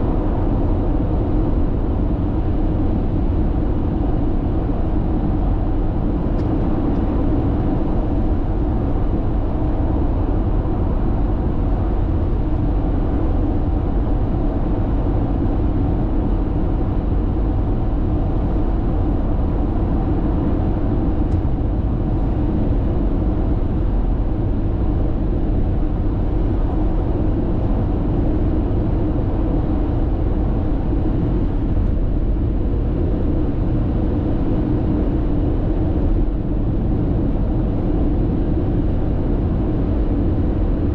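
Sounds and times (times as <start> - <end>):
engine and wind drone: 0.0 - 40.9.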